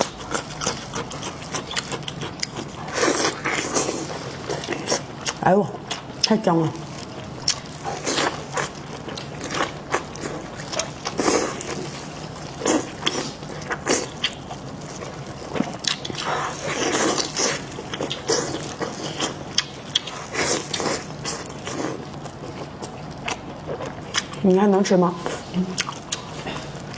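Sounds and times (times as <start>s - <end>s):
wet chewing and slurping: 0.0s - 24.4s, 25.2s - 26.9s.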